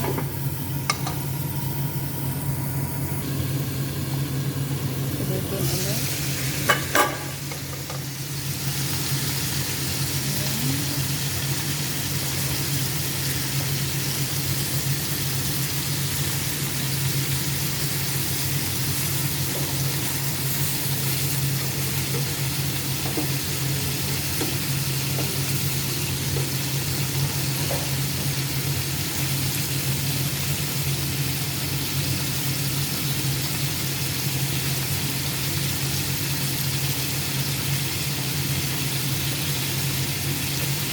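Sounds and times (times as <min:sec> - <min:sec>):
meat sizzling in a pan: 0:00.1 - 0:40.9
low hum: 0:00.3 - 0:08.2.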